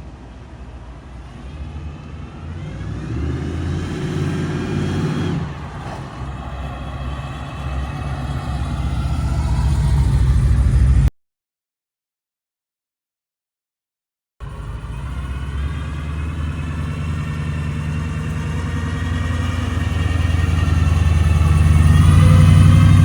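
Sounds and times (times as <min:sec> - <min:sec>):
car engine accelerating: 0:01.4 - 0:11.1, 0:14.4 - 0:23.0.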